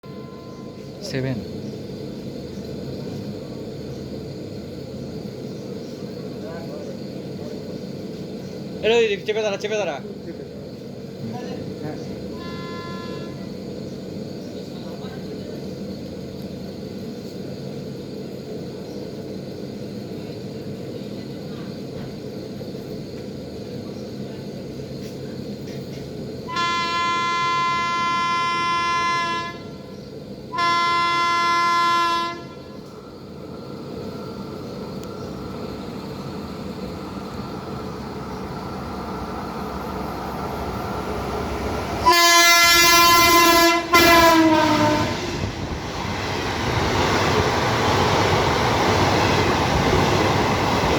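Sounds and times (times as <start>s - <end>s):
passing train rumble: 0.0s - 50.9s
locomotive horn blasts: 12.3s - 13.6s, 26.5s - 32.9s, 42.0s - 45.2s.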